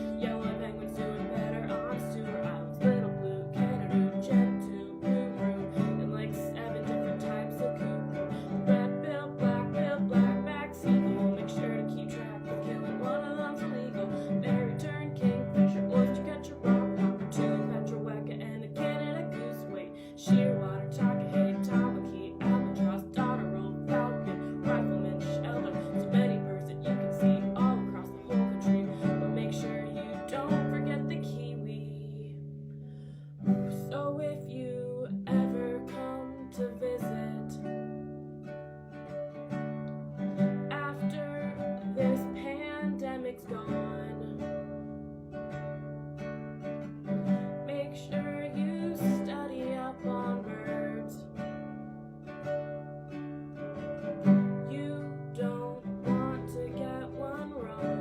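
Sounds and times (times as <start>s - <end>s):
acoustic guitar music: 0.0s - 58.0s.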